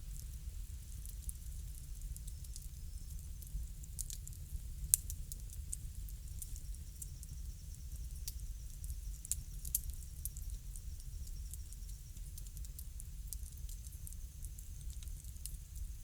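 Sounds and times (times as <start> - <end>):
low rumble of burning: 0.0 - 16.0
bonfire pops and snaps: 0.1 - 6.7.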